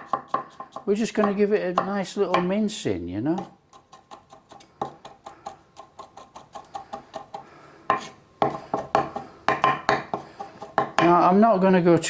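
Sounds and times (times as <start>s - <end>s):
knife tapping on chopping board: 0.0s - 2.5s, 7.9s - 11.2s.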